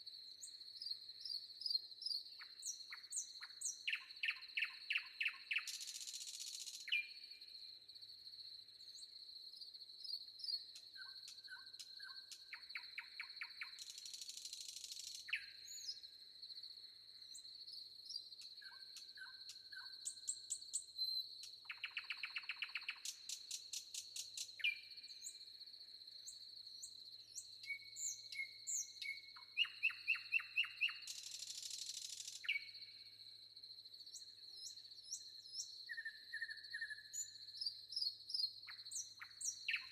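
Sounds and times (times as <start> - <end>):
songbirds calling: 26.8 - 32.8, 34.1 - 39.9.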